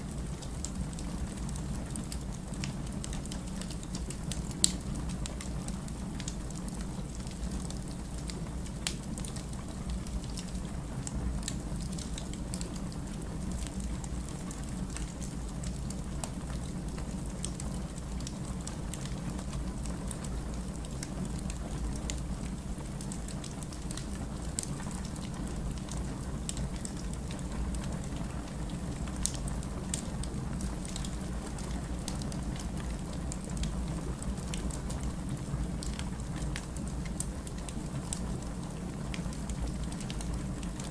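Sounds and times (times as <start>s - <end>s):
low rumble of fire: 0.0s - 40.9s
firewood crackling and popping: 0.2s - 40.9s.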